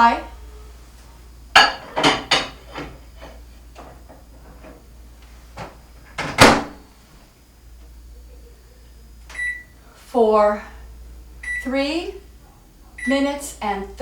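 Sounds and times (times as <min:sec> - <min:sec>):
microwave door shutting: 0:05.6 - 0:06.8.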